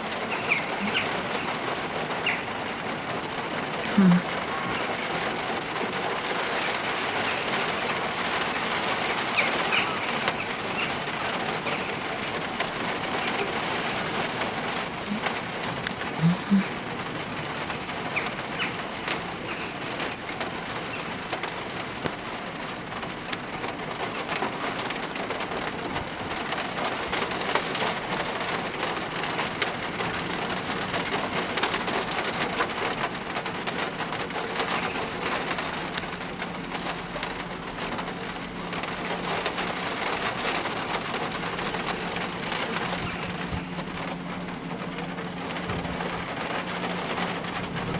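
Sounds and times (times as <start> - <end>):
steady rain falling: 0.0 - 47.9
bird calls: 0.2 - 1.6, 2.2 - 2.6, 9.1 - 12.0, 18.1 - 18.8, 19.4 - 19.8, 43.0 - 43.7.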